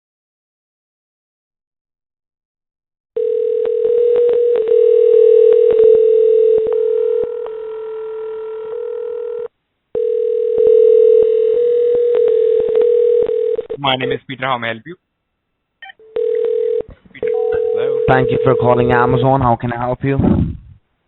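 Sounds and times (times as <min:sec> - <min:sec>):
telephone dial tone: 0:03.2 - 0:13.8, 0:15.8 - 0:19.0.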